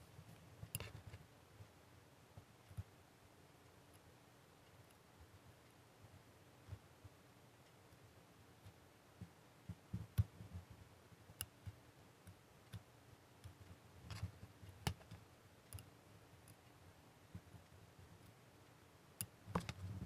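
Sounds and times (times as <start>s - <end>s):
clicks and soft knocks: 19.2s - 20.0s.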